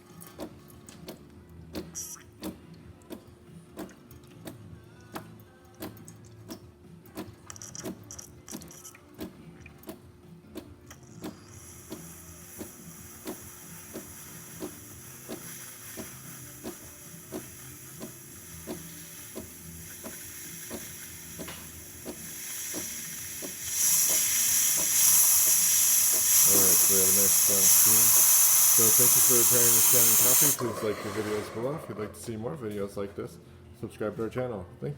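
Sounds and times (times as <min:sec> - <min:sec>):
espresso machine pump clicking: 0:10.9 - 0:32.4
steam hissing from wand: 0:11.4 - 0:31.8.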